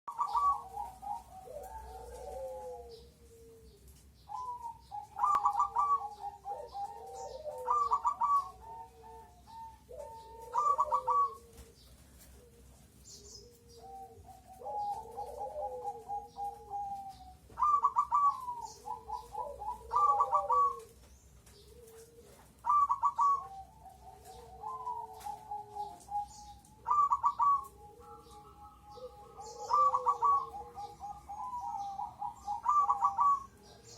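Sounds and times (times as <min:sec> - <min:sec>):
dove cooing: 0:00.1 - 0:33.9.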